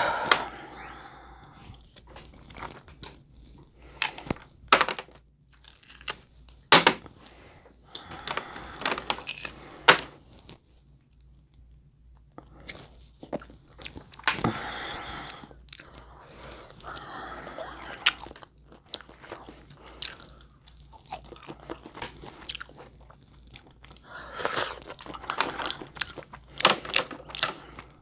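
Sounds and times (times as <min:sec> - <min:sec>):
crab shells cracking: 0:05.6 - 0:06.2, 0:09.0 - 0:09.6
chewing: 0:12.3 - 0:14.4, 0:15.2 - 0:28.0.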